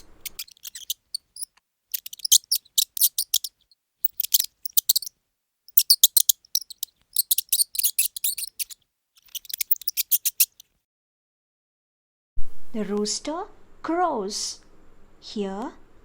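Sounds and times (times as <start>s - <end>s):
mouse squeaking: 0.0s - 5.1s, 5.7s - 10.7s.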